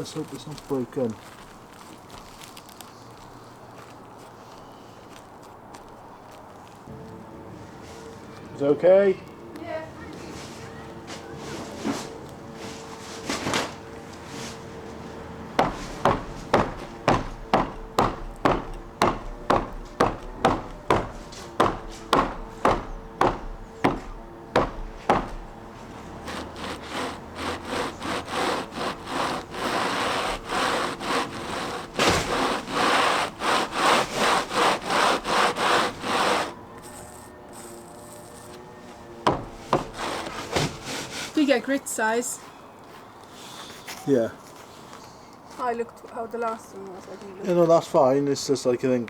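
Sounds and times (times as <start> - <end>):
hand saw cutting wood: 10.6 - 41.7.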